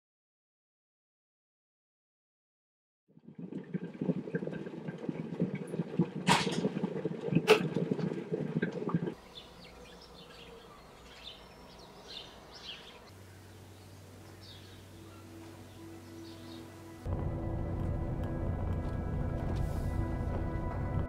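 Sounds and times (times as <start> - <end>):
low crackling rumble: 17.1 - 21.0.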